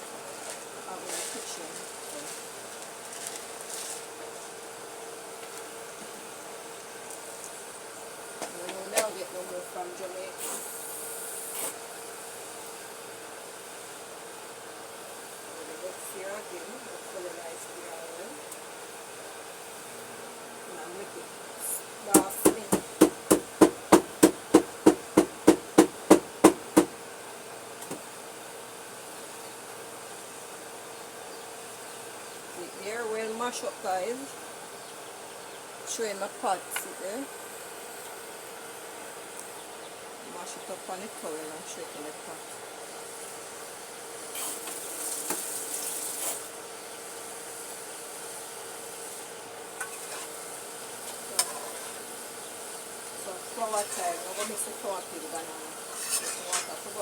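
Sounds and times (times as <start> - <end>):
steady hiss: 0.0 - 57.0
scraping stirring rustle: 0.2 - 4.6, 44.3 - 46.5, 49.1 - 57.0
rhythmic hard knocking: 22.1 - 27.0.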